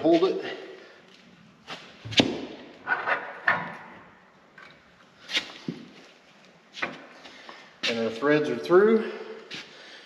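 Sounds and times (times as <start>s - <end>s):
metal knocks and clanks: 2.9s - 4.0s.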